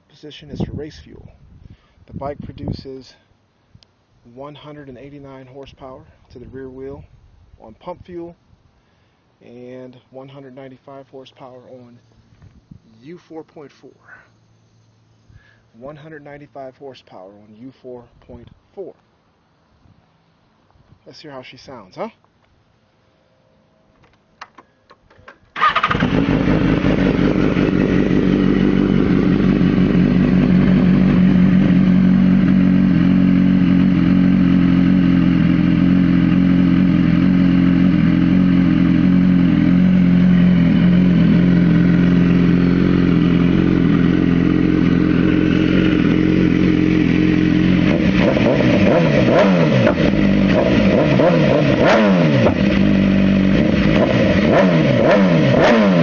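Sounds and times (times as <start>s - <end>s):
motorcycle engine idling and revving: 25.6s - 56.0s.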